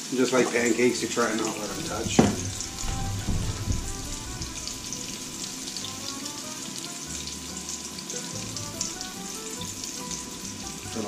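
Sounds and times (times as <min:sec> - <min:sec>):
fritters sizzling in hot oil: 0:00.0 - 0:11.0.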